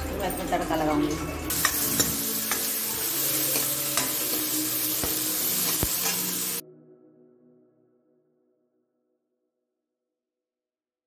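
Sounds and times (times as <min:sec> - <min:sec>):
vegetables sizzling in hot oil: 0:01.5 - 0:06.6
spatula scraping metal pan: 0:05.6 - 0:06.6.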